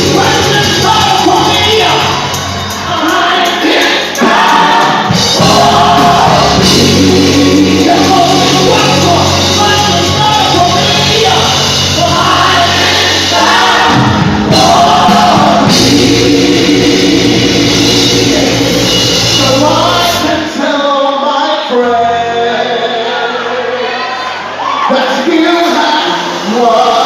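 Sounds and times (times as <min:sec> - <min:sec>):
band with bass: 0:00.0 - 0:20.8
singers and backing choir: 0:00.0 - 0:27.0.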